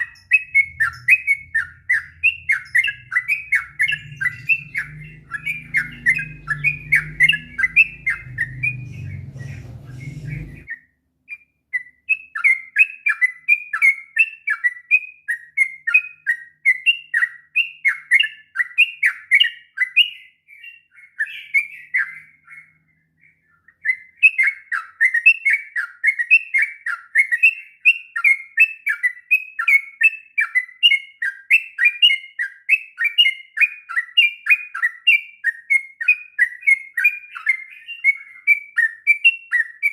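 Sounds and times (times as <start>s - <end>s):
low hum: 0.1s - 10.7s.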